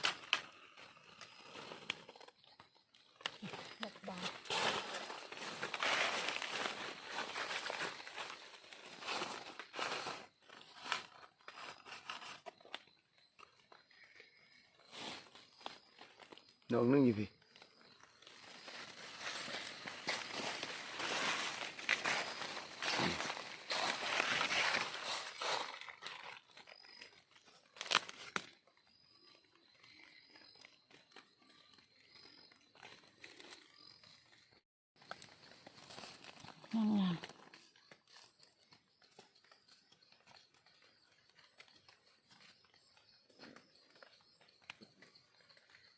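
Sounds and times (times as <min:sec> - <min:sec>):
dry leaves rustling and crunching: 0:03.2 - 0:12.4, 0:18.1 - 0:26.7, 0:27.8 - 0:28.6, 0:35.0 - 0:38.5.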